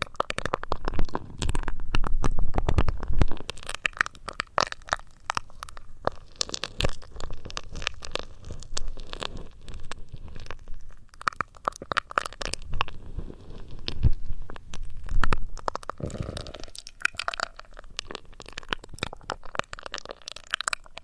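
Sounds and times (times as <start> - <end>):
crinkling rubs on microphone: 0.0 - 3.8, 5.4 - 16.3.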